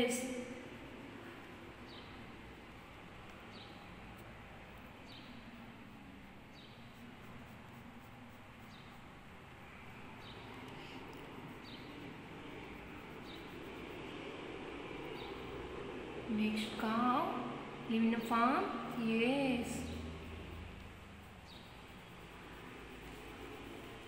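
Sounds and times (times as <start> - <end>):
soft steady background noise: 0.0 - 24.0
small bird chirping: 8.3 - 13.9, 21.2 - 23.2.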